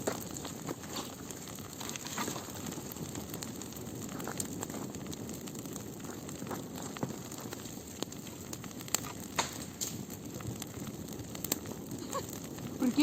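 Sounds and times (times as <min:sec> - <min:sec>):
bonfire flame rushing: 0:00.0 - 0:13.0
fire crackles and pops: 0:00.0 - 0:13.0.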